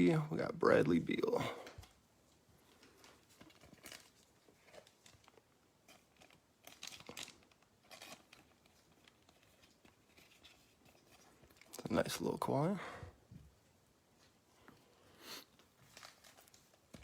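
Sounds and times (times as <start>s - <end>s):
cards and plastic crinkling: 1.1s - 12.5s, 15.6s - 17.0s.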